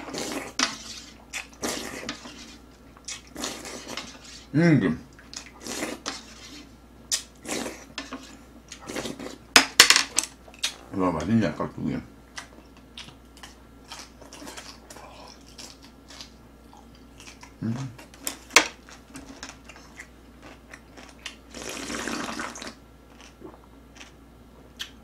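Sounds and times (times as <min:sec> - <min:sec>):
crunchy chewing: 0:12.3 - 0:25.0.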